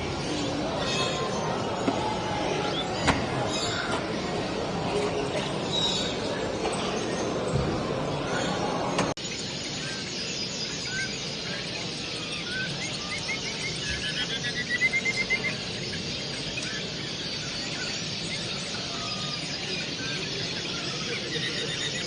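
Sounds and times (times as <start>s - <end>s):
songbirds chirping and singing: 0.0s - 22.0s.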